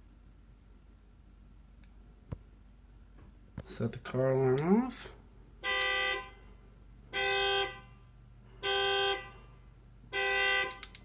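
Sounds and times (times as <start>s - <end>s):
car horn honks: 5.6s - 6.5s, 7.1s - 8.0s, 8.6s - 9.4s, 10.1s - 10.9s.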